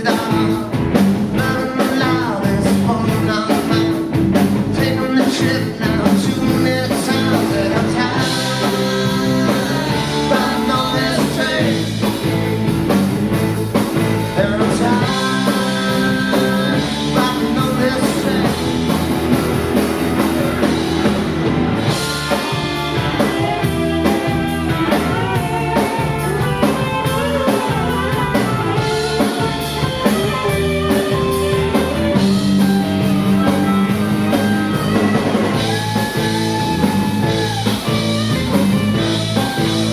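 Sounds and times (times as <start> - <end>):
person singing: 0.0 - 0.8, 1.4 - 12.1, 14.2 - 18.9, 23.2 - 38.1
electric guitar: 0.0 - 39.9
live rock band playing: 0.0 - 39.9.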